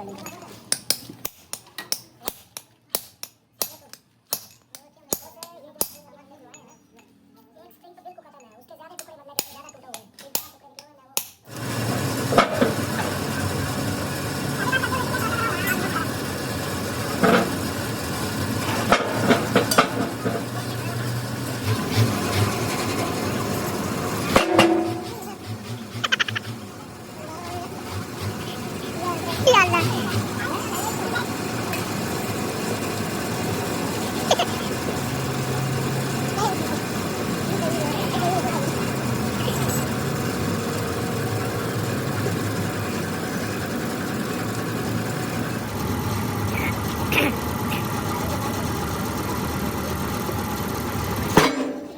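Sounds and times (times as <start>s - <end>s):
engine idling: 11.5s - 51.9s
workshop machinery noise: 11.5s - 51.9s
sharp metallic knocks: 24.2s - 26.6s, 51.3s - 51.9s.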